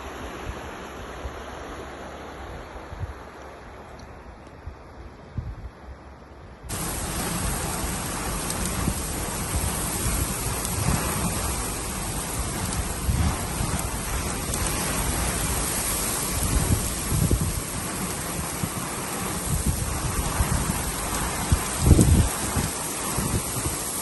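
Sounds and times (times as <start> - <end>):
wind buffeting microphone: 4.6 - 6.0, 6.6 - 24.0
heavy rain: 6.7 - 24.0.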